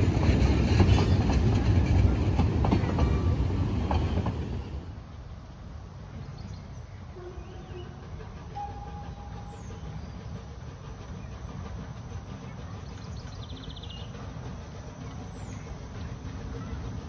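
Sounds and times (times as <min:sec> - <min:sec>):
train rumbling: 0:00.0 - 0:17.0
bird chirping: 0:06.2 - 0:16.0.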